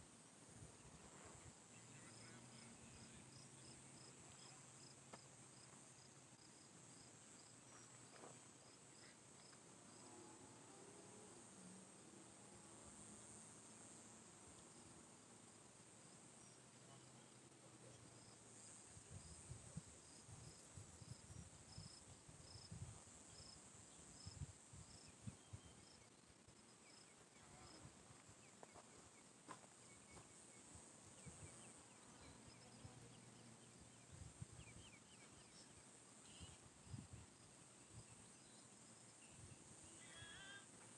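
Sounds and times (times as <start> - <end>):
high insect drone: 0.4 - 40.9
faint chirps: 0.7 - 11.8, 23.2 - 40.9.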